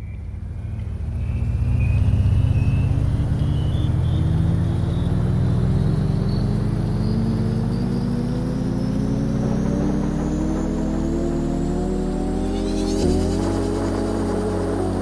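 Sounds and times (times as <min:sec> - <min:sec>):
vehicle engine accelerating: 0:00.0 - 0:15.0.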